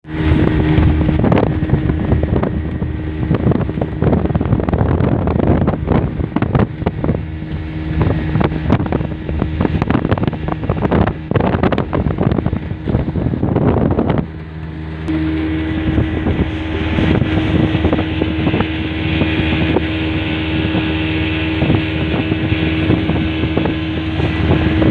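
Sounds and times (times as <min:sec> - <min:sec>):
boat engine running: 0:00.0 - 0:24.9
wind buffeting microphone: 0:00.0 - 0:24.9.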